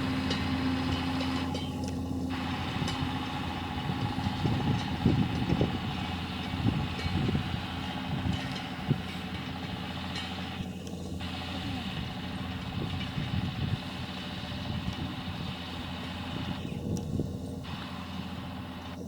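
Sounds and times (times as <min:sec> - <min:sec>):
tractor engine running: 0:00.0 - 0:19.0
clanks and knocks: 0:02.6 - 0:11.1.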